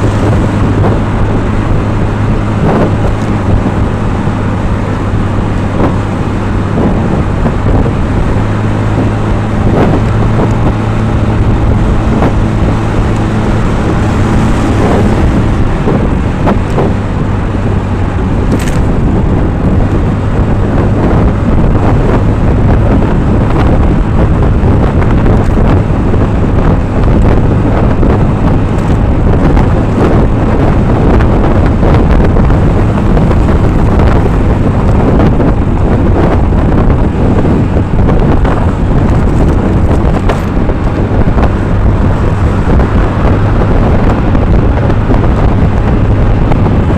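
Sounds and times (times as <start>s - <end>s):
road noise: 0.0s - 46.9s
vehicle engine hum: 0.0s - 46.9s
wind buffeting microphone: 0.0s - 46.9s.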